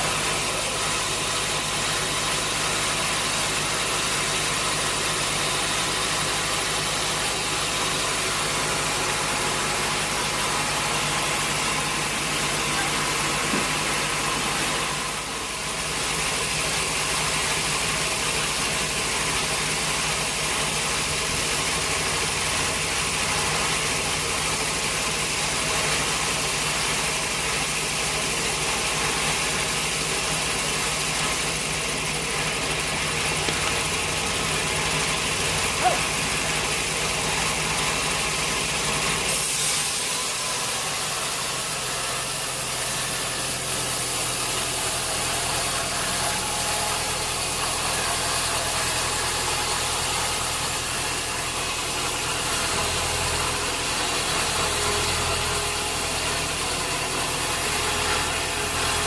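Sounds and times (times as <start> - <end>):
sawmill machinery running: 0.0 - 59.0.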